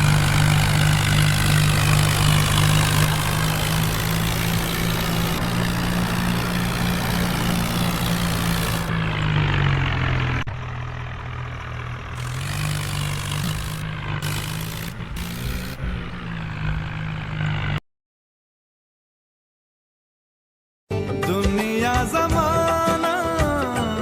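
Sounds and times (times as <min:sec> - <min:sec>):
tractor engine running: 0:00.0 - 0:17.8.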